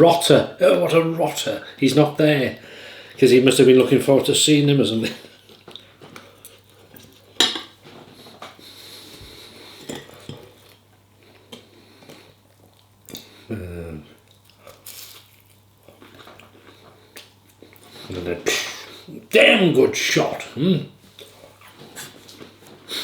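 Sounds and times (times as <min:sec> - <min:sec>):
cutlery clinking on a dish: 0:07.4 - 0:07.8.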